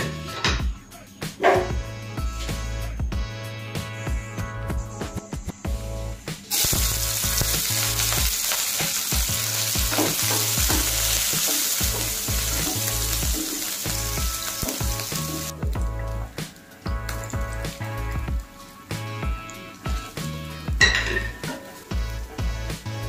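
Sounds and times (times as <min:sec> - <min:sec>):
onions sizzling in hot oil: 0:06.5 - 0:23.0.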